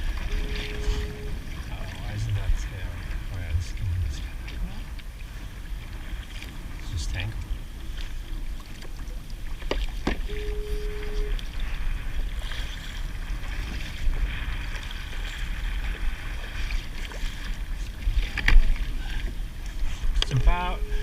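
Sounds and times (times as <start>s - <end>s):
water splashing around kayak: 0.0s - 21.0s
wind rumbling on microphone: 0.0s - 21.0s
brief steady tone: 0.2s - 1.5s, 10.2s - 11.5s, 20.3s - 21.0s.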